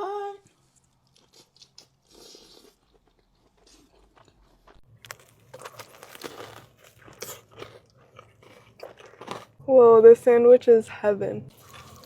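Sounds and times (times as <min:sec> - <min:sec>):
person chewing: 0:00.6 - 0:09.6, 0:11.5 - 0:12.0
crisp crunching bites: 0:01.2 - 0:09.6.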